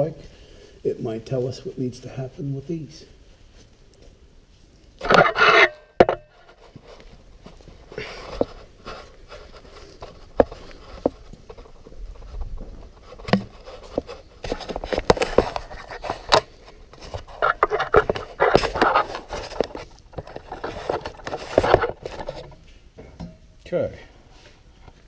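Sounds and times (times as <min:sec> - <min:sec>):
scraping and rustling: 0:02.2 - 0:23.0
sharp clicks and knocks: 0:12.4 - 0:23.4.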